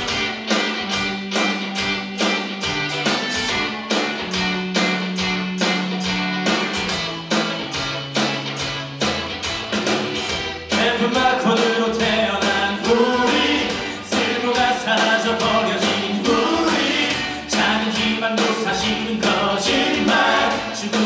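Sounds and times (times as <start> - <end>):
strummed guitar: 0.0 - 21.0
group of voices singing: 10.7 - 21.0.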